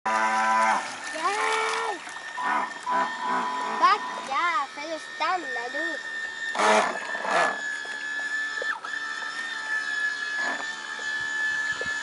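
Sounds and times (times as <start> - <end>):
model boat motor whining: 0.1 - 12.0.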